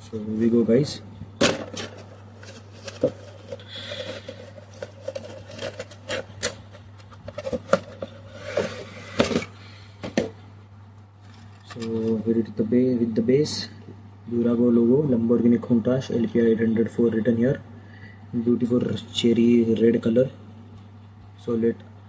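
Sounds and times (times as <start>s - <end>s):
steady low hum: 0.0s - 22.0s
cardboard and plastic packaging handled: 1.4s - 10.4s.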